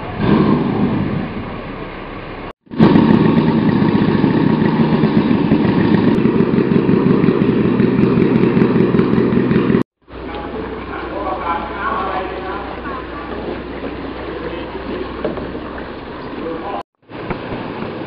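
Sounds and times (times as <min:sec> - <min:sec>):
motor engine chugging: 0:02.7 - 0:09.8.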